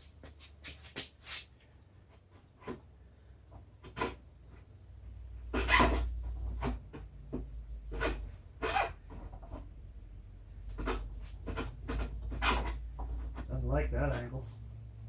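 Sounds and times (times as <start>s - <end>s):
scraping and knocking on metal: 3.5s - 4.7s, 5.4s - 9.8s, 10.6s - 14.3s.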